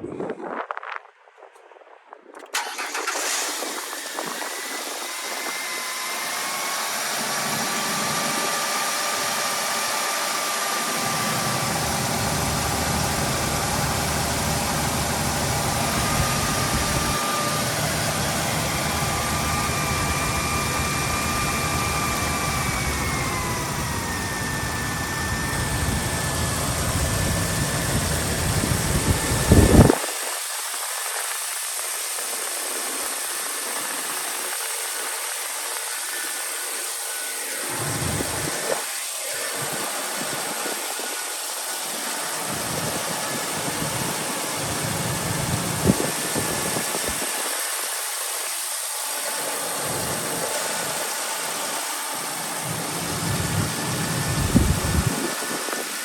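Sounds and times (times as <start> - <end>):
car engine starting and idling: 2.4 - 30.0, 36.8 - 56.0
high whine: 11.0 - 30.4, 36.7 - 47.5, 49.1 - 56.0.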